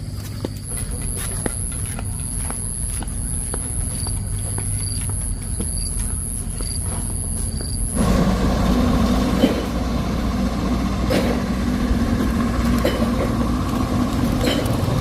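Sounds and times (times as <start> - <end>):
small engine running: 7.9 - 15.0.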